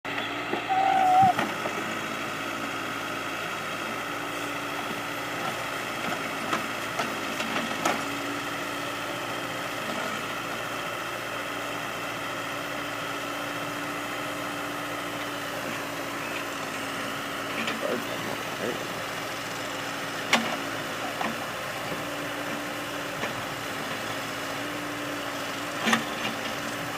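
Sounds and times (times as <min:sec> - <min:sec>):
diesel engine running: 0:00.0 - 0:26.9
loud wavering tone: 0:00.7 - 0:01.4.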